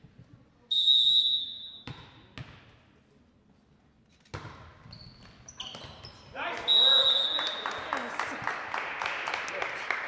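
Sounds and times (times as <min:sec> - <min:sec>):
referee's whistle: 0:00.7 - 0:01.8, 0:06.6 - 0:07.6
volleyball bouncing on gym floor: 0:01.8 - 0:02.8.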